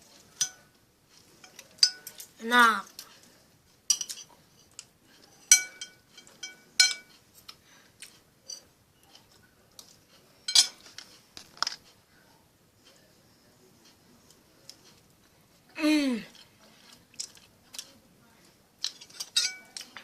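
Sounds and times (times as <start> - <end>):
cutlery clinking on a plate: 0.3 - 0.7, 1.4 - 2.3, 3.9 - 7.6, 8.4 - 9.4, 10.4 - 11.8, 18.8 - 20.0.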